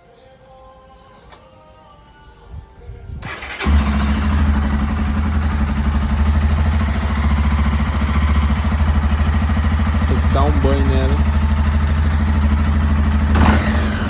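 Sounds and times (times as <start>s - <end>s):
motorcycle engine starting and idling: 3.2s - 14.0s.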